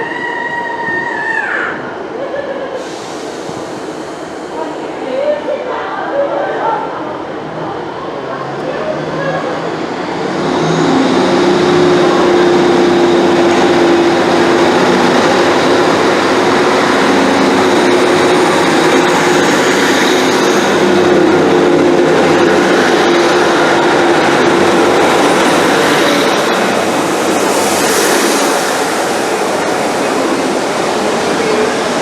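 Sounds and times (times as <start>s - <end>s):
diesel train engine droning: 1.8s - 32.0s.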